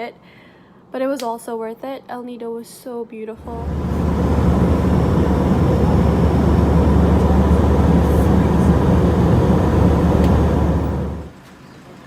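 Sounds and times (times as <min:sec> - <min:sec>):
road travel noise: 0:03.4 - 0:11.4
vehicle engine rumble: 0:03.4 - 0:11.4.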